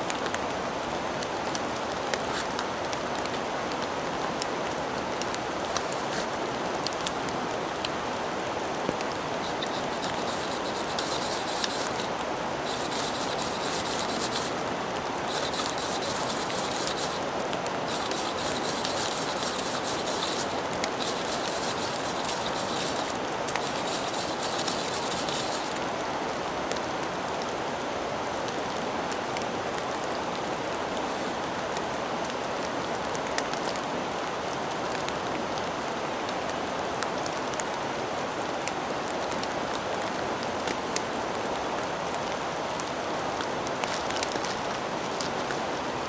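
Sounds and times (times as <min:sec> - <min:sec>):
rasping scrapes: 0:05.7 - 0:06.3, 0:09.3 - 0:25.8, 0:43.8 - 0:45.7.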